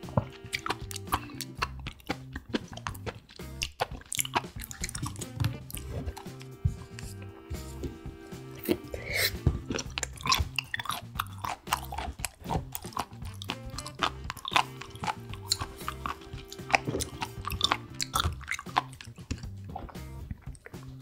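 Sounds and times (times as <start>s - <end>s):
background music with low tones: 0.0s - 21.0s
chewing and crunching seafood: 0.0s - 21.0s.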